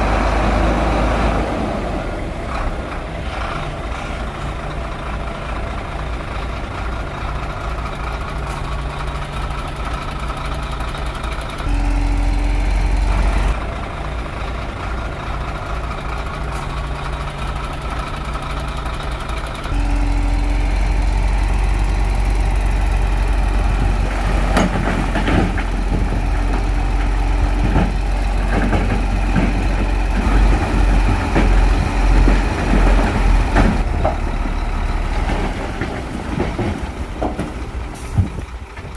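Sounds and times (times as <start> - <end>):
bulldozer diesel engine: 0.0 - 38.9.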